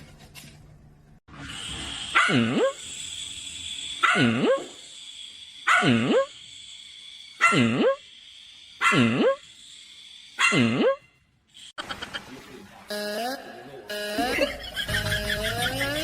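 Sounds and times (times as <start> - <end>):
dog barking: 2.1 - 2.7, 4.0 - 4.7, 5.7 - 6.3, 7.4 - 8.0, 8.8 - 9.4, 10.4 - 11.0.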